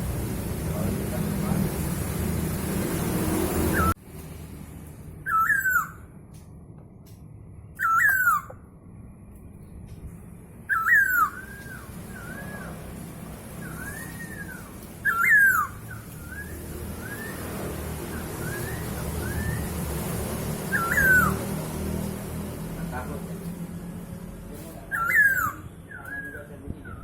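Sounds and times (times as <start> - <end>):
songbird whistling and twittering: 3.7 - 4.0, 5.2 - 6.1, 7.7 - 8.6, 10.6 - 21.6, 24.8 - 27.0.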